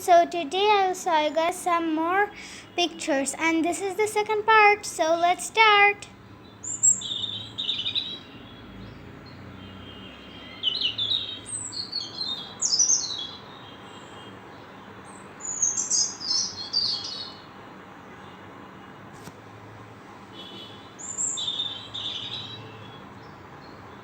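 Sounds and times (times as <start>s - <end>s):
songbird twittering: 6.6s - 9.0s, 9.9s - 14.3s, 15.1s - 17.4s, 21.0s - 23.8s.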